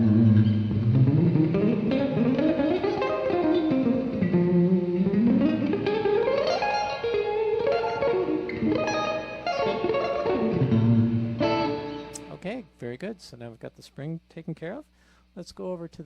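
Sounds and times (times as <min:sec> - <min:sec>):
electric guitar with spring reverb: 0:00.0 - 0:12.4.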